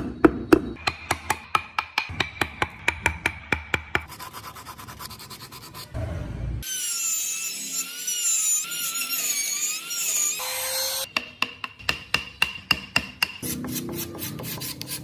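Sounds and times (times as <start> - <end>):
power carving tool whining: 6.7 - 11.1.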